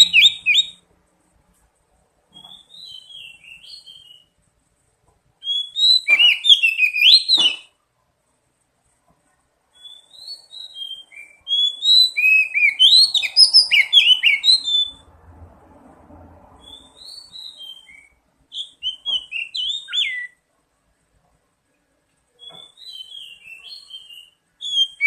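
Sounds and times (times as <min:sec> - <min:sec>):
bird singing whistled phrases: 0:00.0 - 0:00.8, 0:02.4 - 0:04.3, 0:05.4 - 0:07.7, 0:09.8 - 0:15.0, 0:16.6 - 0:20.4, 0:22.4 - 0:25.0.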